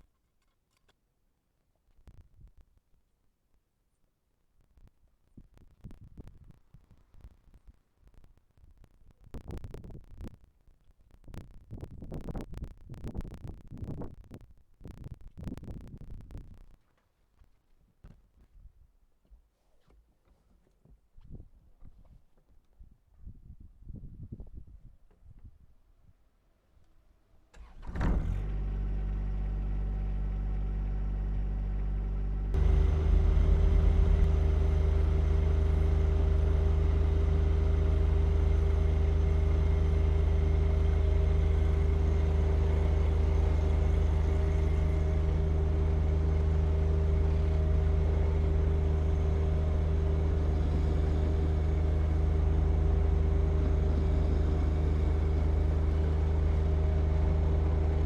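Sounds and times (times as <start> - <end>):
diesel tractor engine running: 27.6 - 58.0.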